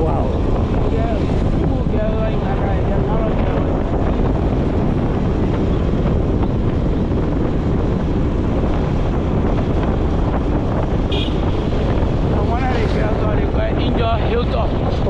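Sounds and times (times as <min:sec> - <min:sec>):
motorcycle engine and road noise: 0:00.0 - 0:15.0
wind buffeting microphone: 0:00.0 - 0:15.0.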